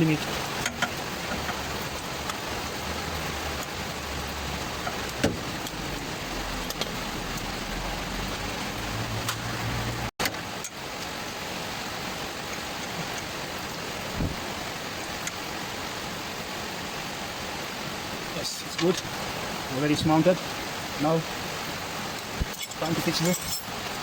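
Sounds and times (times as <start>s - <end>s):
rain hissing: 0.0s - 24.0s.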